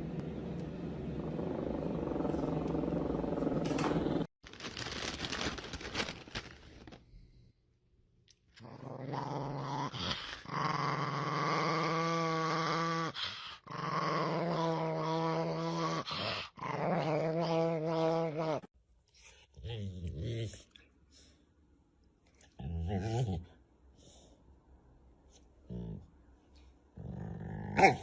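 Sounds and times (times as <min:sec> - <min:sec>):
dog growling: 0:08.6 - 0:18.7, 0:27.0 - 0:28.0.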